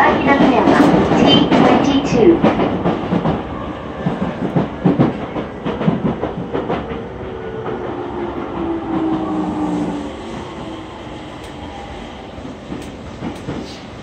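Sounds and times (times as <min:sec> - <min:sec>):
train wheels clacking over rail joints: 0:04.0 - 0:07.1, 0:12.6 - 0:14.0.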